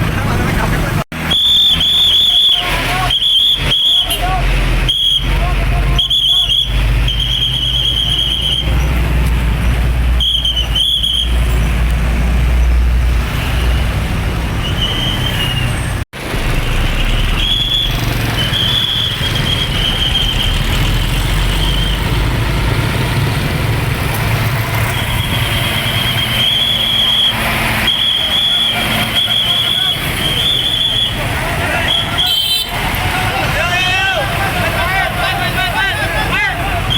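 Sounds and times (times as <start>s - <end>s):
heavy trucks passing: 0.0s - 36.9s.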